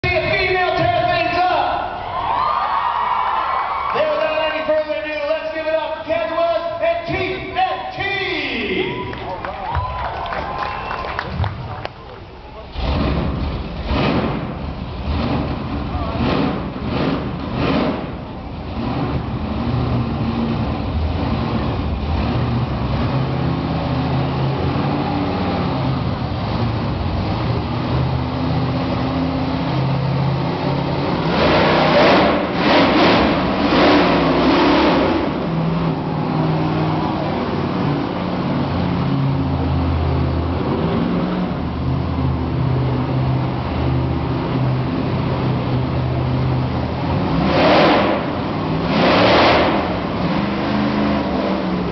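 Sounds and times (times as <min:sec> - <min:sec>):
truck engines revving: 0:00.0 - 0:51.9.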